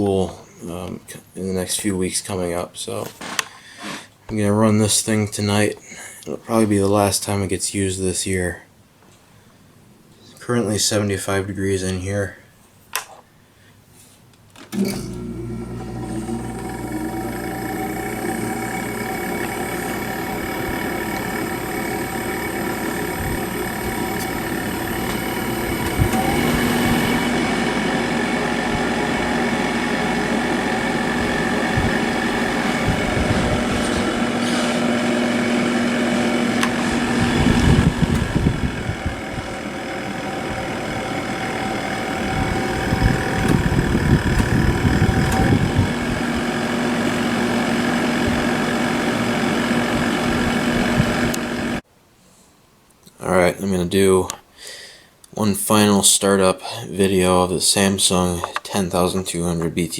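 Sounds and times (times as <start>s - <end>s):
air conditioner fan humming: 14.7s - 51.8s
compressor low hum: 14.7s - 51.8s.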